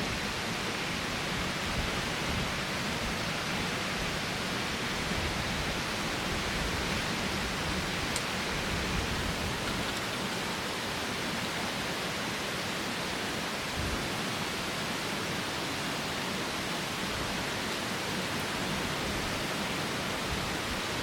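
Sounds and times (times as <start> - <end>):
strong wind blowing: 3.9 - 9.9.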